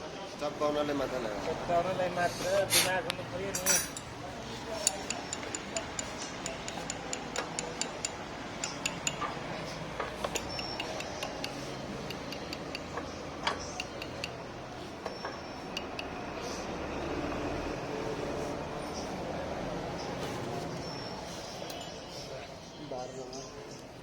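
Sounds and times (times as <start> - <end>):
metallic clicks of hand tools: 4.8 - 9.4, 10.0 - 14.4.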